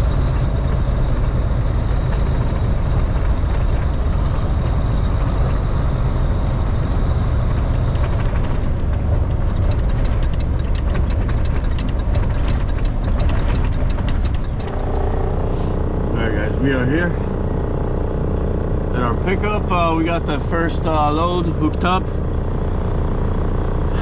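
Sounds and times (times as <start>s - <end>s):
diesel truck engine rumbling: 0.0s - 24.0s
light clicks and rattles: 7.5s - 14.8s.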